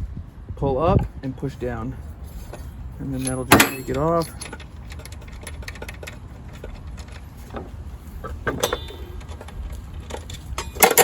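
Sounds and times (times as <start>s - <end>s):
low steady rumble: 0.0s - 11.0s
metal clink and ring: 2.4s - 5.4s, 8.6s - 9.2s
metallic clicks and clinks: 2.6s - 11.0s.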